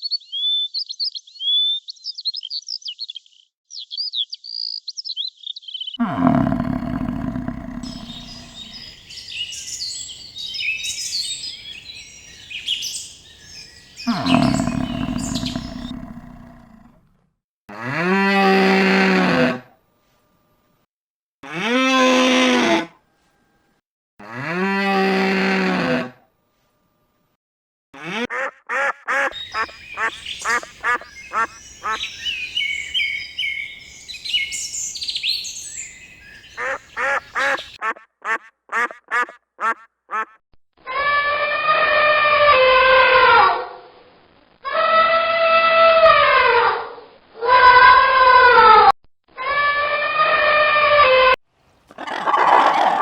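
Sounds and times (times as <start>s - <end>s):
cow mooing: 6.0s - 9.0s, 14.0s - 16.8s
drawn-out falling animal calls: 6.0s - 16.8s, 28.2s - 40.4s, 51.9s - 53.0s
rapid duck quacks: 28.0s - 32.1s, 36.6s - 40.4s.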